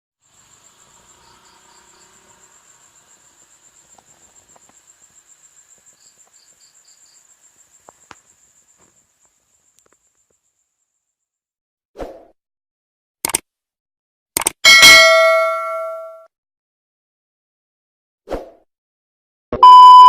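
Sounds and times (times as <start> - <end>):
crickets trilling: 0.2 - 11.0
scattered clicks: 13.2 - 13.5, 14.4 - 14.6.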